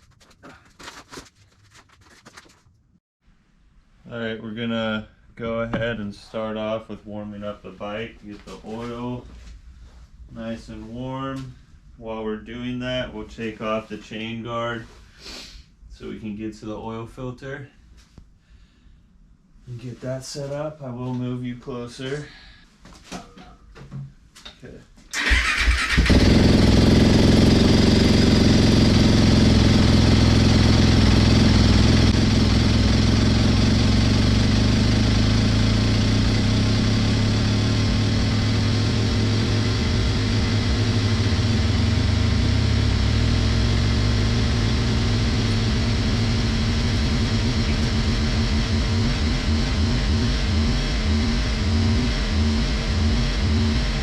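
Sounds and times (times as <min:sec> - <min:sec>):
motorcycle engine idling: 0:25.3 - 0:49.8.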